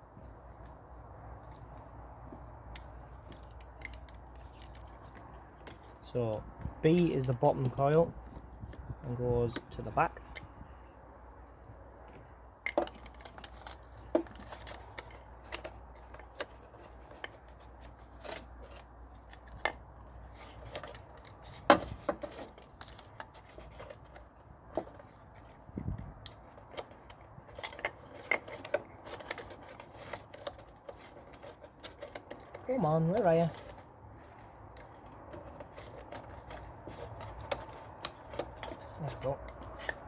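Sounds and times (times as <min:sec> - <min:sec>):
clicks and taps of parts handled: 0:02.3 - 0:10.5, 0:11.4 - 0:19.8.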